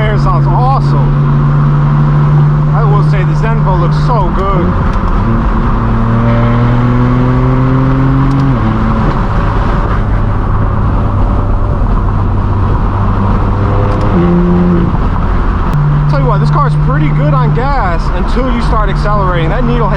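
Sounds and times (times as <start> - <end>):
car engine accelerating: 0.0 - 19.9.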